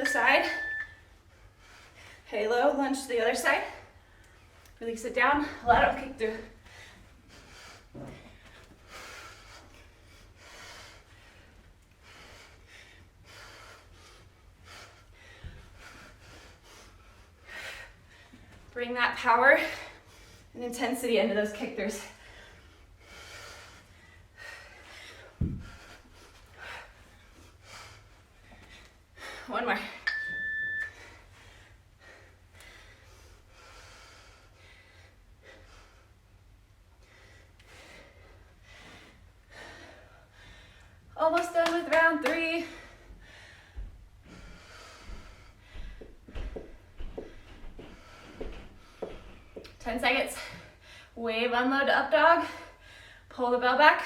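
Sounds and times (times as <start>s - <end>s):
person breathing hard: 6.6s - 18.6s, 22.1s - 29.5s, 37.0s - 41.1s, 42.7s - 49.8s.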